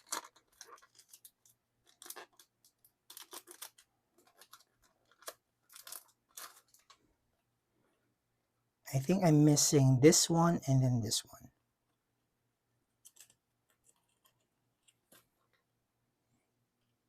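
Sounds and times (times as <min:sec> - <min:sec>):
packaging crinkling: 0:00.0 - 0:07.0.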